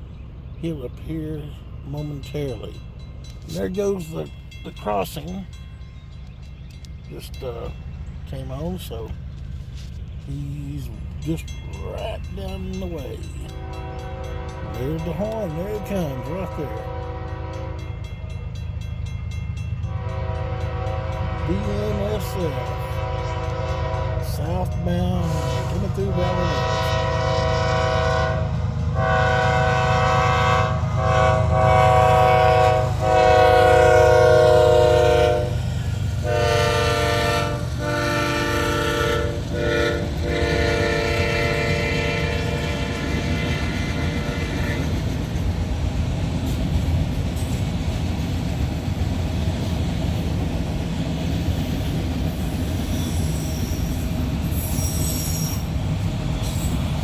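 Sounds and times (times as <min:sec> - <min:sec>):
train wheels rumbling on rail: 0:00.0 - 0:57.0
locomotive air horn blasts: 0:13.5 - 0:15.2, 0:15.8 - 0:17.9, 0:19.9 - 0:24.4, 0:25.2 - 0:35.6, 0:36.2 - 0:44.8
high wheel squeal: 0:51.5 - 0:57.0.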